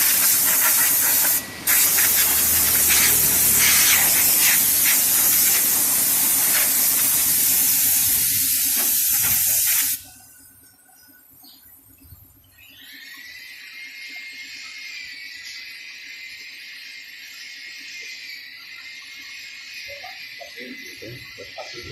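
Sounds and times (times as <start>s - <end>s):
spray nozzle hissing: 0.0s - 10.1s.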